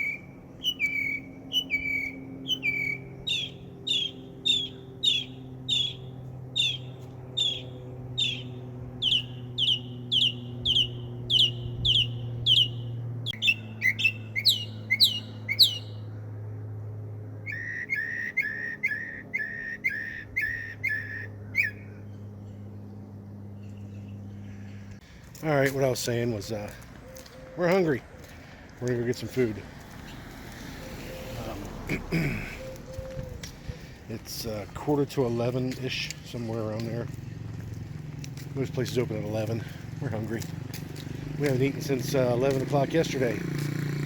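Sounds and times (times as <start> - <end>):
songbird whistling notes: 0.0 - 16.0, 17.4 - 22.2, 30.8 - 31.7, 32.6 - 34.0
steady low hum: 0.0 - 42.4.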